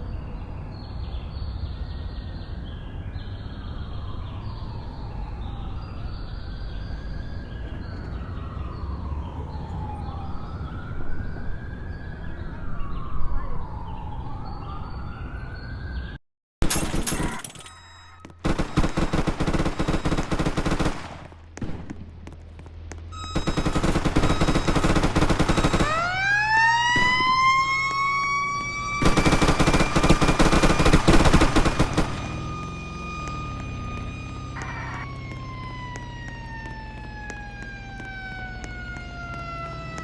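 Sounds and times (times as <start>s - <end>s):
fast pulsing electronic siren: 3.6s - 16.1s, 17.3s - 18.5s, 23.1s - 40.0s
siren winding up: 17.1s - 18.4s, 23.1s - 25.0s, 25.6s - 29.2s, 32.2s - 40.0s.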